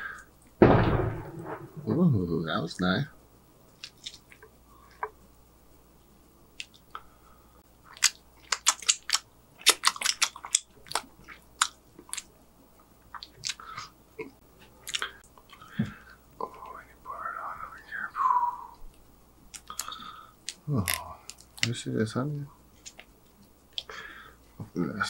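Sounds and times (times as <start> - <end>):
chewing: 7.8 - 12.3, 13.1 - 15.7.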